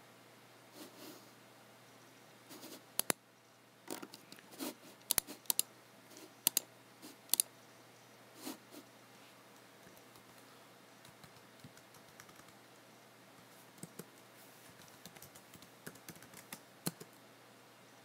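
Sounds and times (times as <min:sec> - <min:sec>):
computer mouse buttons clicking: 0:03.0 - 0:03.2, 0:05.0 - 0:05.7, 0:06.4 - 0:06.7, 0:07.3 - 0:07.5, 0:11.0 - 0:12.6, 0:14.8 - 0:17.1.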